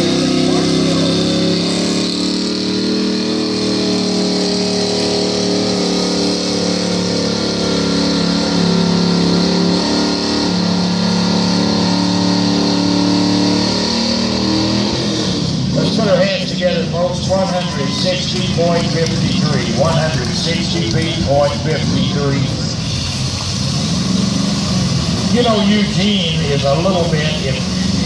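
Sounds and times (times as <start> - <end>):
truck engine at high revs: 0.0 - 28.0.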